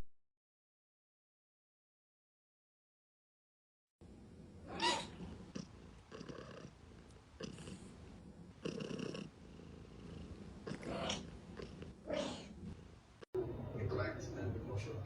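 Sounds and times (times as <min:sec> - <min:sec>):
cat purring: 0:04.0 - 0:15.0.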